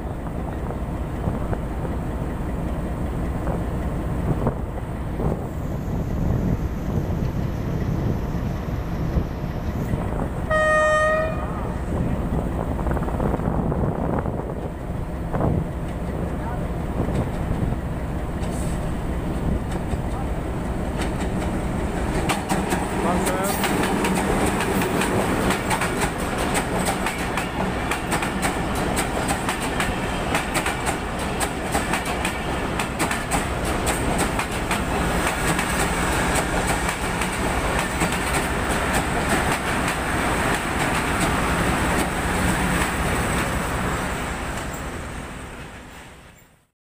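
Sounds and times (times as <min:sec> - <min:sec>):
train wheels clattering over rail joints: 0:16.9 - 0:43.1.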